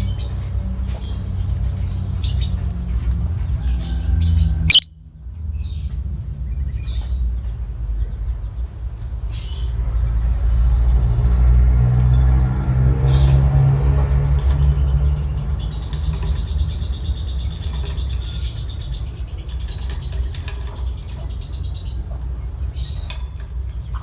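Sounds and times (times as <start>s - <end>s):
lovebird chirping: 4.7s - 5.0s
steady low rumble: 12.1s - 24.0s.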